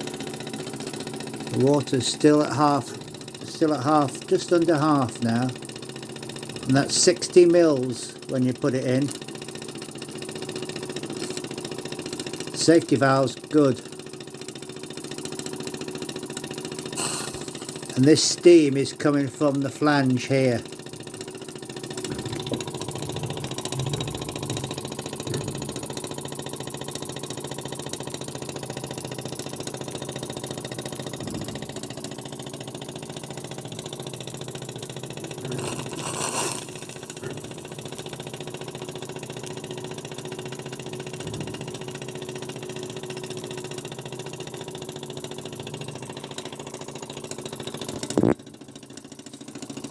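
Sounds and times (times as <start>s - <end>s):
model steam engine beat: 16.8s - 18.4s
rush of steam: 17.0s - 17.6s, 35.5s - 37.1s
steam hissing from leak: 17.0s - 18.0s, 35.4s - 37.2s.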